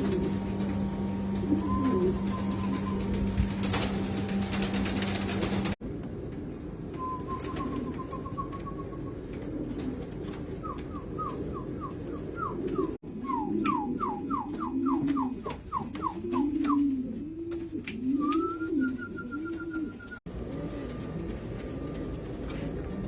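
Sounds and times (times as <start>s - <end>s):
pigeons cooing: 0.0s - 5.8s, 7.0s - 23.0s.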